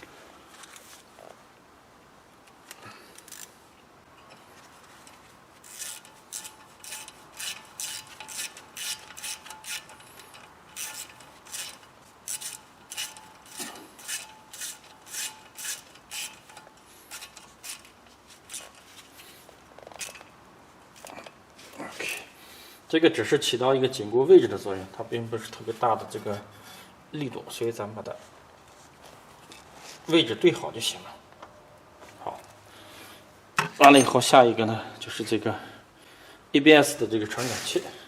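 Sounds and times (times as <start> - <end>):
ratchet clicking: 3.2 - 3.5, 5.6 - 17.9.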